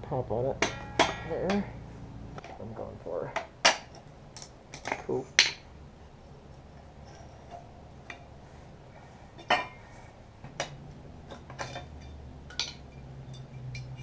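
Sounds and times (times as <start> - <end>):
low steady hum: 0.0 - 14.0
metal tools clinking: 0.6 - 1.8, 9.4 - 9.9, 11.2 - 14.0.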